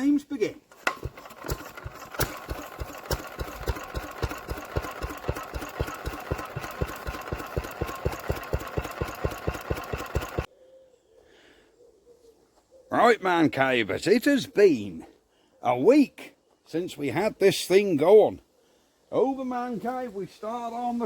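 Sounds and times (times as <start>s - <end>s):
diesel engine knocking: 1.0s - 10.5s.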